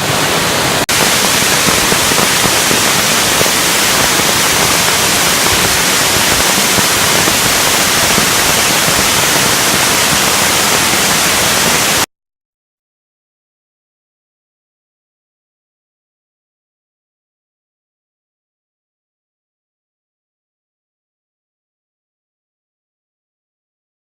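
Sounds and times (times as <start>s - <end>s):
rushing river: 0.0s - 12.1s.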